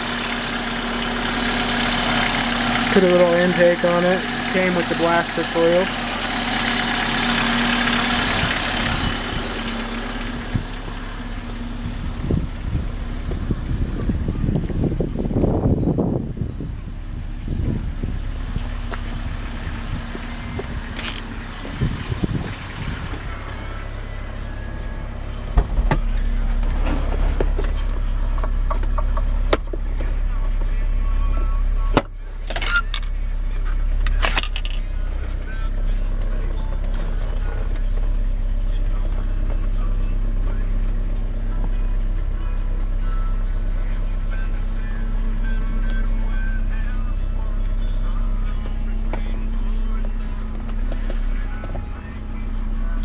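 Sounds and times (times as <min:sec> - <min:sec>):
car engine idling: 0:00.0 - 0:53.0
wind buffeting microphone: 0:08.2 - 0:09.6, 0:11.8 - 0:23.5.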